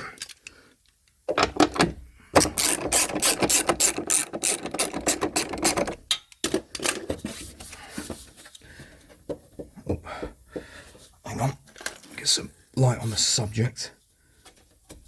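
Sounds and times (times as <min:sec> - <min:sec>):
ratchet wrench clicking: 0:02.4 - 0:06.0.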